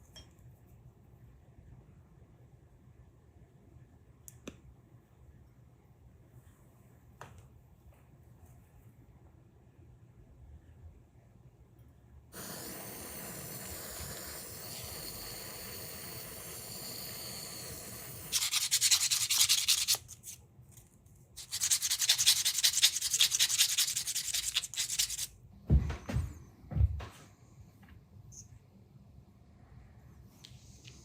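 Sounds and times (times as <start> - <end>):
small machine running: 12.4 - 18.4.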